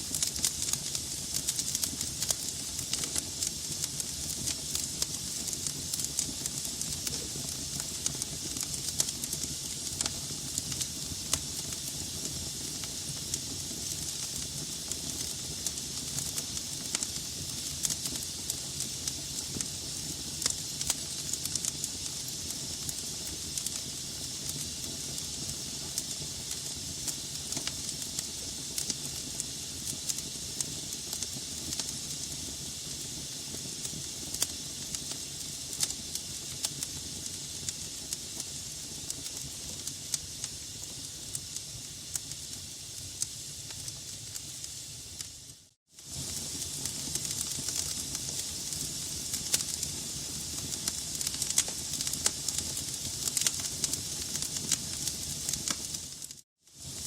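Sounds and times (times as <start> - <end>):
fire crackles and pops: 0.0 - 57.0
hiss of flames: 0.0 - 57.0.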